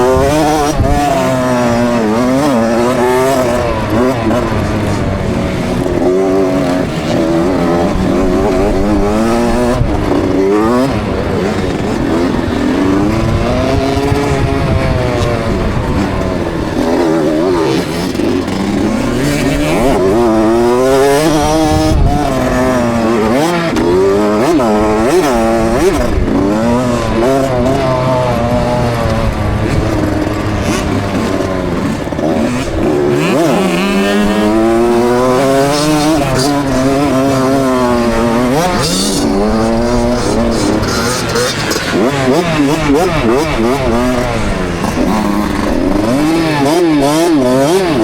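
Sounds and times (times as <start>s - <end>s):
motocross bike engine revving: 0.0s - 48.0s.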